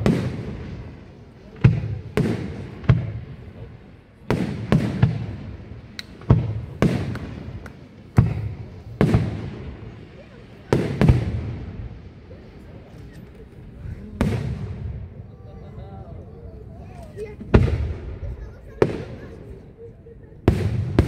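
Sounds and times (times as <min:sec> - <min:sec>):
firework bangs with echo: 0:00.0 - 0:12.2, 0:14.2 - 0:15.2, 0:17.4 - 0:19.6, 0:20.4 - 0:21.0.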